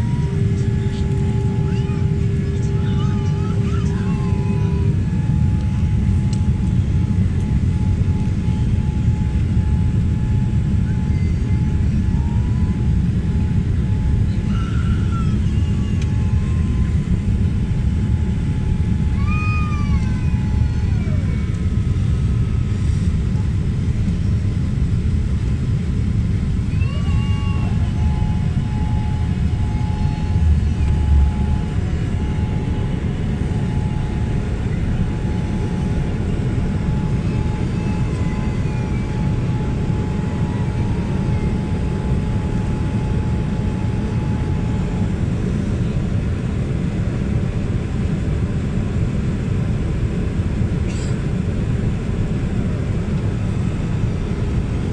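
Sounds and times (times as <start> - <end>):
airliner engine and airflow rumble: 0.0 - 54.9
faint steady whine: 0.0 - 54.9
wavering high cries: 26.7 - 44.5.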